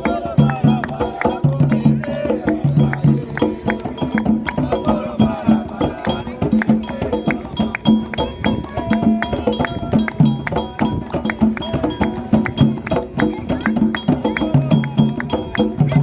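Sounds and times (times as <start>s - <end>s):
hand drums playing fast rhythm: 0.0s - 16.0s.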